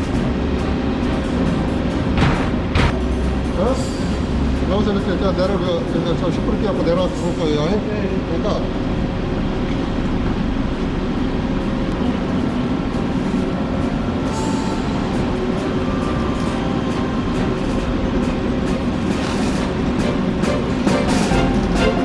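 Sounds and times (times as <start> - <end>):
steady mechanical noise: 0.0 - 22.0.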